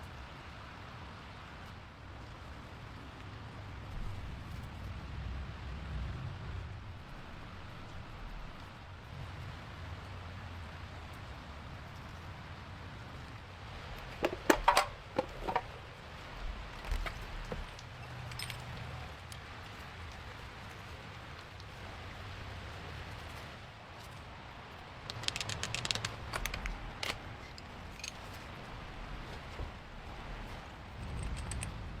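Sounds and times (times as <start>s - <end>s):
sharp clicks and clinks: 14.2s - 15.7s, 25.0s - 28.4s, 31.0s - 31.9s.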